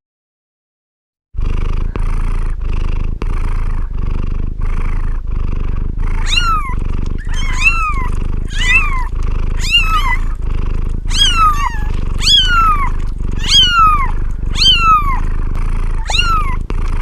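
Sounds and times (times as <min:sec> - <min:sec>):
cat purring: 0:01.4 - 0:17.0
cat meowing: 0:06.2 - 0:10.4, 0:11.0 - 0:15.3, 0:16.0 - 0:16.7.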